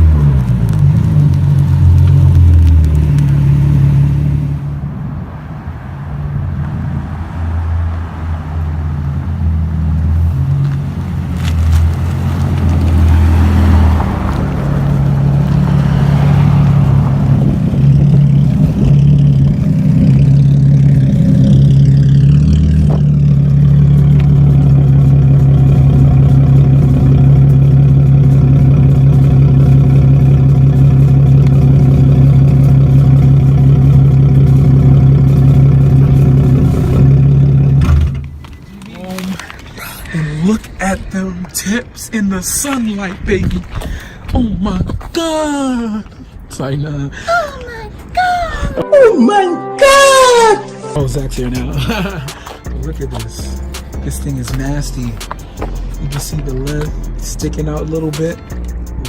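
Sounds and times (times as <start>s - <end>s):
loud low exhaust drone: 50.9s - 55.1s.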